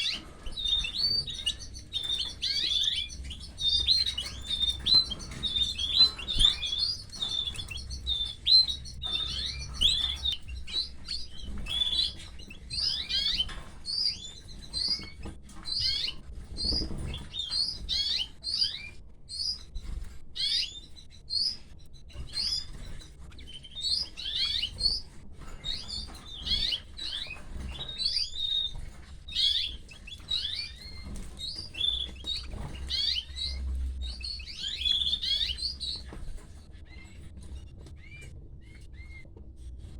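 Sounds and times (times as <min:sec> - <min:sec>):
chicks cheeping: 0:00.0 - 0:39.9.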